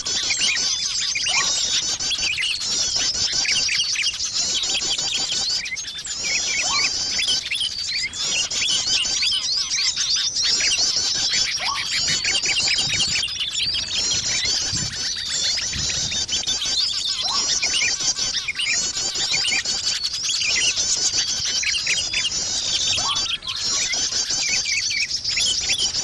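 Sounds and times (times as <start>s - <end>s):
small birds chirping: 0.0s - 26.0s
lower rising bird call: 6.1s - 26.0s.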